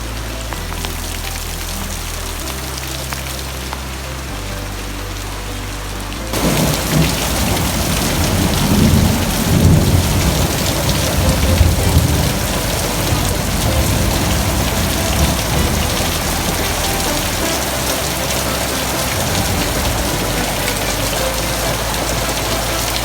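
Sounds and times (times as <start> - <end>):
heavy rain pouring: 0.0 - 23.0
low rumble of thunder: 6.4 - 23.0.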